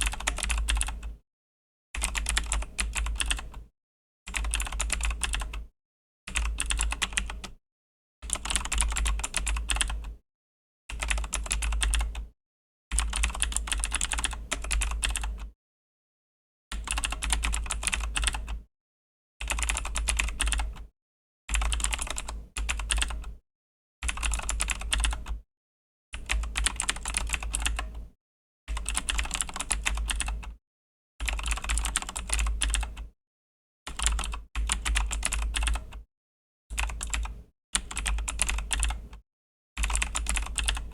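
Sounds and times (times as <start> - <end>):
mechanical keyboard typing: 0.0 - 1.1, 2.0 - 3.6, 4.4 - 5.6, 6.3 - 7.6, 8.3 - 10.1, 10.9 - 12.3, 13.0 - 15.5, 16.7 - 18.6, 19.4 - 20.9, 21.5 - 23.2, 24.1 - 25.4, 26.2 - 27.9, 28.7 - 30.5, 31.2 - 33.1, 33.9 - 36.0, 36.8 - 39.2, 39.8 - 40.9.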